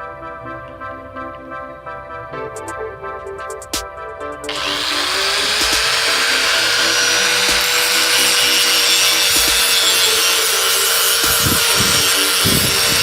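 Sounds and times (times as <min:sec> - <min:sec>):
power tool motor whine: 0:04.5 - 0:13.0.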